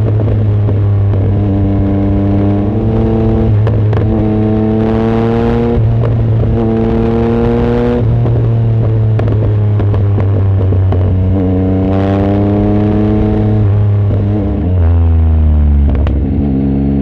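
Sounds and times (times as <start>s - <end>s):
motorcycle engine revving through gears: 0.0s - 17.0s.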